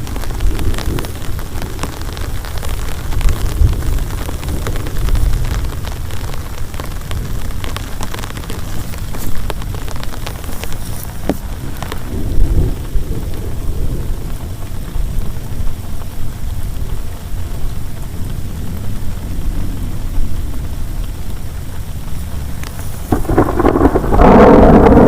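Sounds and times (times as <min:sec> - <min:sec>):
rolling thunder rumble: 0:00.0 - 0:16.0, 0:22.3 - 0:25.0
heavy rain: 0:00.0 - 0:25.0.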